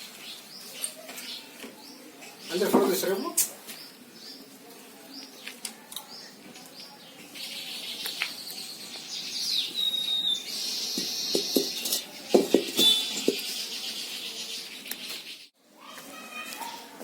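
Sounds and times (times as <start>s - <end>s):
birds chirping: 0.0s - 17.0s
whistled bird note: 12.8s - 13.6s.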